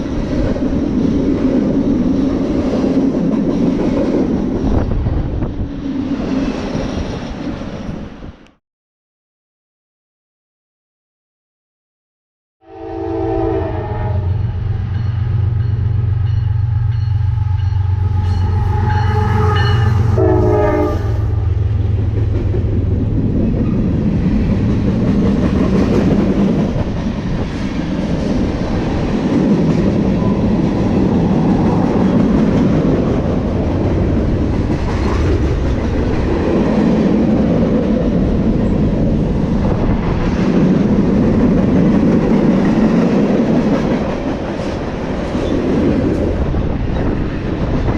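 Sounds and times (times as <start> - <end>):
locomotive horn: 12.6 - 14.9, 17.2 - 21.5
freight cars clickety-clack: 21.8 - 47.9.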